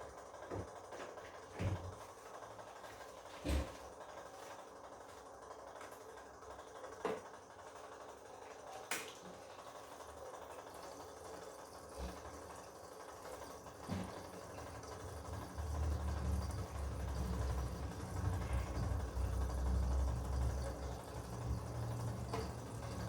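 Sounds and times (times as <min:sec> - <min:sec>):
washing machine humming: 0:00.0 - 0:23.0
washing machine low rumble: 0:00.0 - 0:23.0
washing machine knocks: 0:13.8 - 0:14.5.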